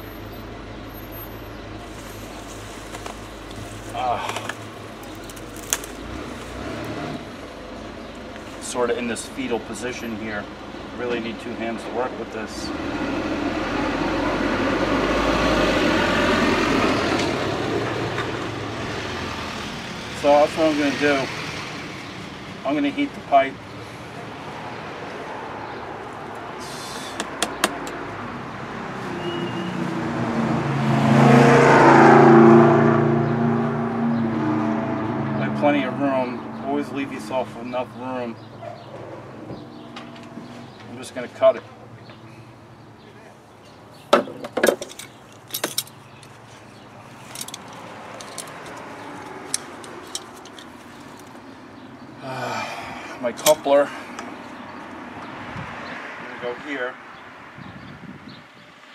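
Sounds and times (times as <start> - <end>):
motor vehicle passing: 12.5 - 22.8, 23.6 - 58.9.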